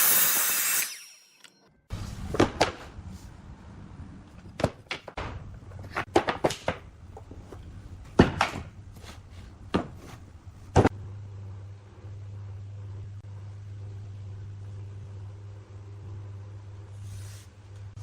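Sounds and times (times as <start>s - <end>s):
steady low hum: 6.8s - 18.0s.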